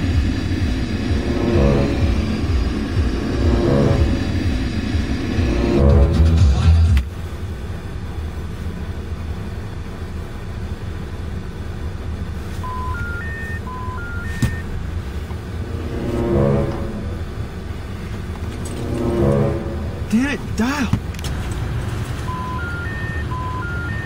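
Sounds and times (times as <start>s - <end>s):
car engine low rumble: 0.0s - 24.0s
phone rising beeps: 12.6s - 14.7s, 22.2s - 24.0s.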